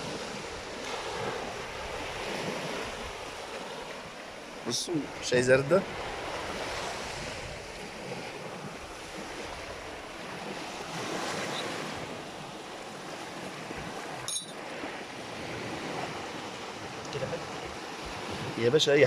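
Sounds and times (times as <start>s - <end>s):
sea surf washing against shore: 0.0s - 19.0s
wind buffeting microphone: 5.1s - 12.2s, 13.4s - 18.8s.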